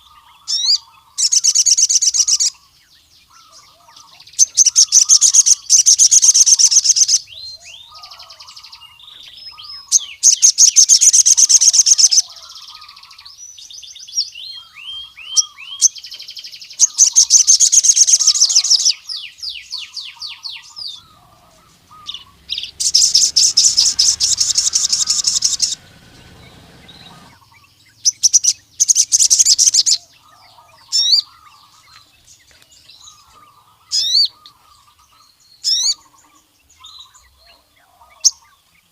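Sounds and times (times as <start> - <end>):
soft bird chirps: 0.0 - 38.9
sunbird high fast trilling: 20.0 - 30.1.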